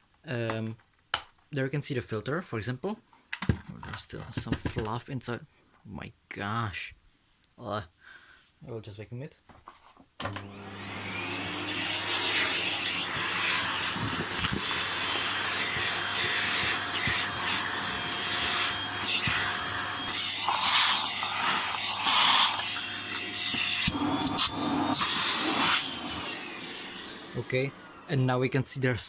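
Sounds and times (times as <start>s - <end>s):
vacuum cleaner running: 10.2s - 29.0s.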